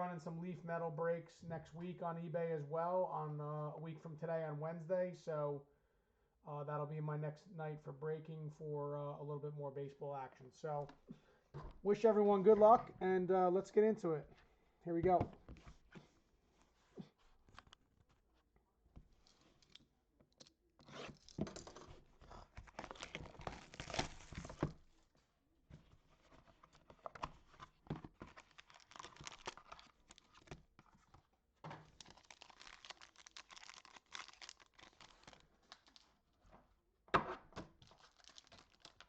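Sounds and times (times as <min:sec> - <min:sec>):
small clicks and handling noises: 0:17.5 - 0:18.2, 0:19.0 - 0:22.0
wrapping torn and crinkled: 0:22.3 - 0:24.6, 0:26.2 - 0:31.2, 0:31.8 - 0:36.3, 0:37.8 - 0:39.0.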